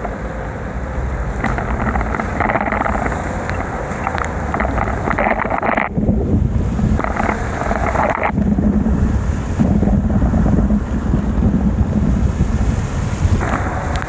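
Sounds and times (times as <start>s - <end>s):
wind buffeting microphone: 0.0s - 14.0s
hiss of wet road: 8.8s - 14.0s.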